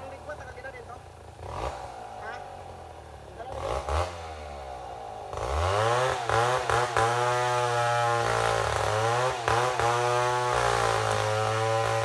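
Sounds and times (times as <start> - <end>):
chainsaw cutting log: 3.6 - 12.0.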